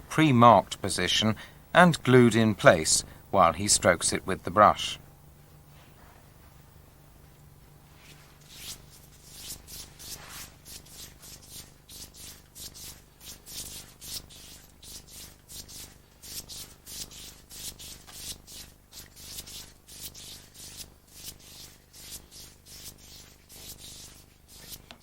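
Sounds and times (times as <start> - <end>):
brush swishing on paper: 7.9 - 25.0.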